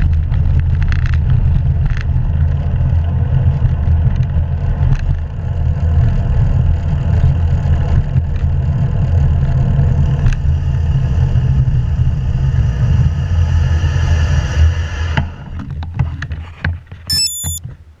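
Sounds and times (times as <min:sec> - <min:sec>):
clicks: 0:17.1 - 0:17.6
short high electronic beeps: 0:17.1 - 0:17.6.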